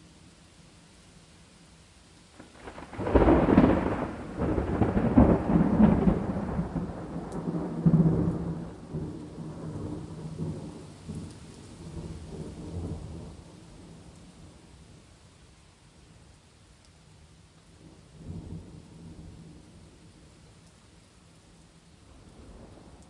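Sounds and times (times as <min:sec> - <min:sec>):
steady rain: 0:00.0 - 0:23.0
thunderclap crackling and rumbling: 0:02.4 - 0:13.9.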